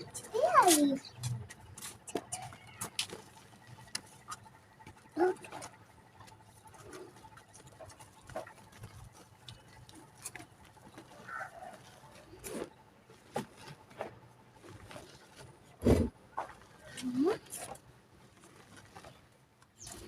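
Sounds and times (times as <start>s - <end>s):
faint animal calls: 11.0s - 12.5s.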